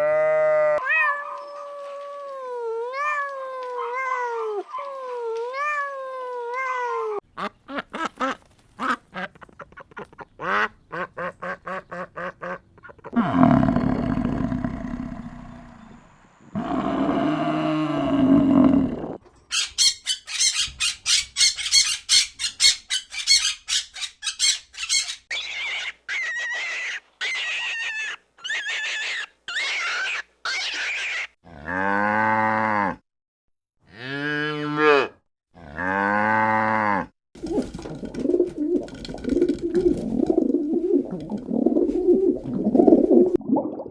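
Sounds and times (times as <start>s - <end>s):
cow mooing: 13.2s - 16.0s, 16.6s - 19.2s, 33.9s - 37.1s
pulsed rough low animal calls: 13.2s - 19.2s.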